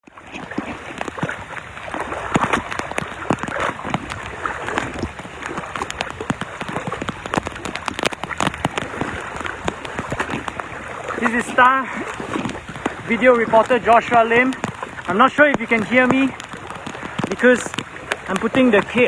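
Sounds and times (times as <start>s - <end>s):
rain falling: 0.1s - 19.0s
close taps and clicks: 12.3s - 19.0s.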